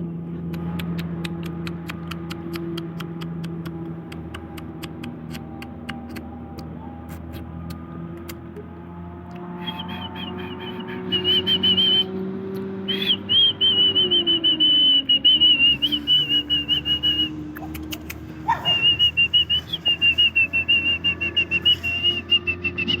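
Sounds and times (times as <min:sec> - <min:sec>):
high warbling whistle: 0:12.9 - 0:17.4, 0:18.5 - 0:23.0.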